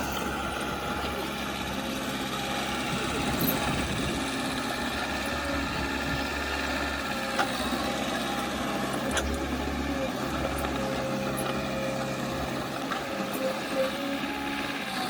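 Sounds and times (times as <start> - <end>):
diesel engine of heavy equipment: 0.0 - 15.0.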